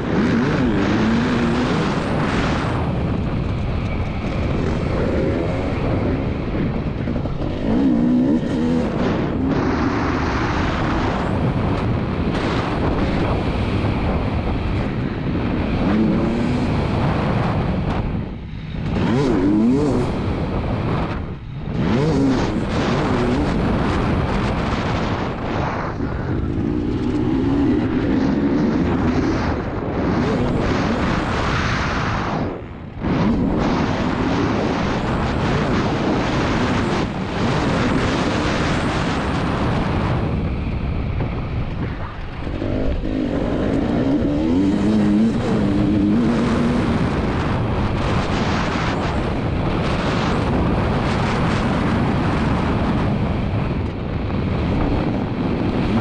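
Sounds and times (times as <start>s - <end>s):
motocross engine revving: 0.0s - 3.0s, 4.2s - 11.3s, 15.7s - 17.4s, 18.8s - 20.9s, 21.7s - 31.4s, 42.3s - 49.2s
wind noise on microphone: 0.0s - 56.0s.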